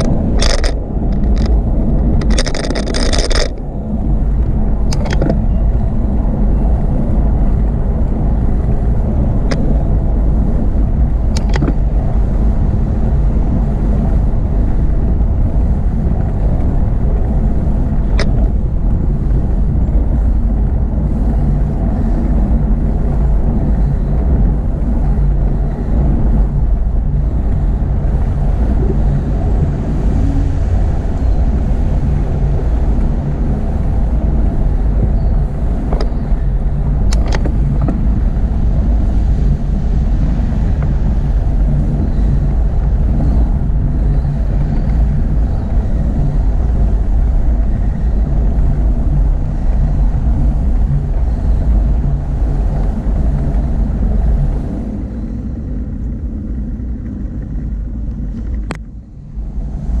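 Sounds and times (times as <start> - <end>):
wind and road noise: 0.0 - 60.0
sharp clicks: 2.2 - 3.6.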